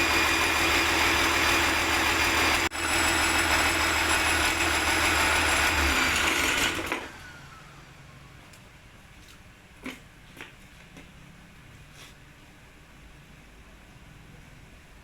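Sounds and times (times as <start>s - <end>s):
engine running and winding down: 0.0s - 7.4s.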